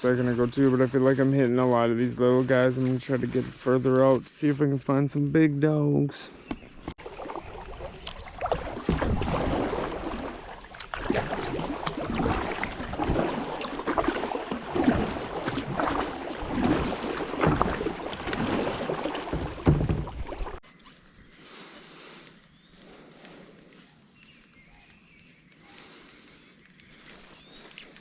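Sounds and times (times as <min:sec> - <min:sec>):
paddle splashing in water: 0:06.5 - 0:20.6.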